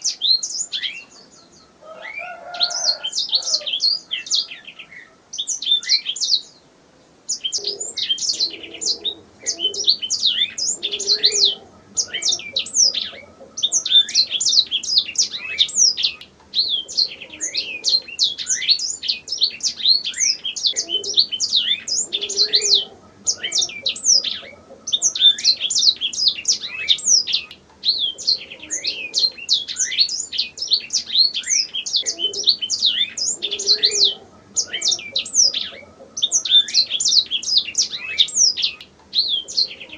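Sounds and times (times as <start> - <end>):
canary singing chirps and trills: 0.0 - 6.6, 7.3 - 39.9.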